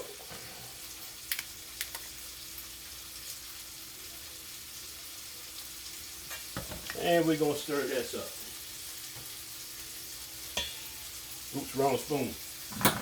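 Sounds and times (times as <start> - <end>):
steaks sizzling in a pan: 0.0 - 13.0.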